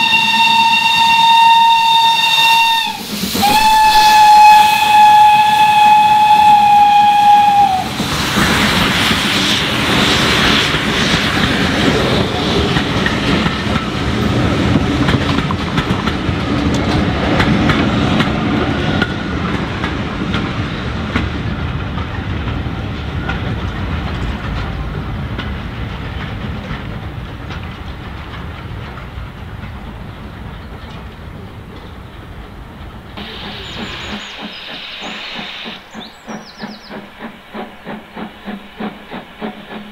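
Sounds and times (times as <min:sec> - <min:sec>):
steam locomotive whistle: 0:00.0 - 0:08.1
steam hiss: 0:00.0 - 0:15.4, 0:33.0 - 0:39.9
train passing with rumble: 0:00.0 - 0:39.9
wheels clacking over rail joints: 0:10.4 - 0:39.9.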